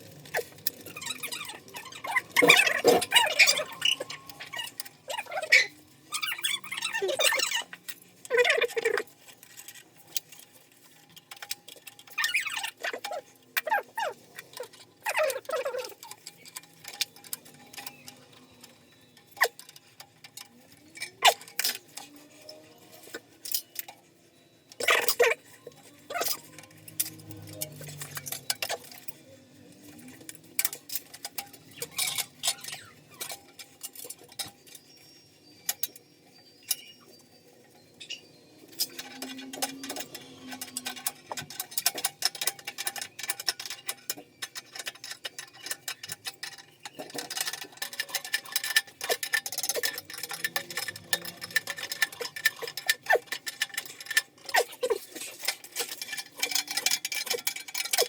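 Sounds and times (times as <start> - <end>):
metallic clicks on pipe fittings: 0.0 - 24.1, 24.7 - 58.0.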